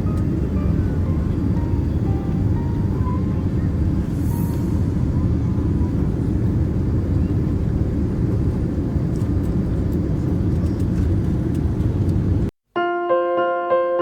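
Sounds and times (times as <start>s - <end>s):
electric piano music: 0.0s - 5.9s, 12.7s - 14.0s
jet airliner rumbling: 0.0s - 12.5s.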